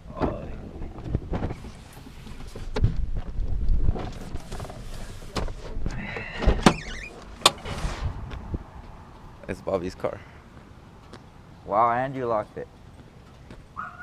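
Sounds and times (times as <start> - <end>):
low rumble: 7.1 - 9.6.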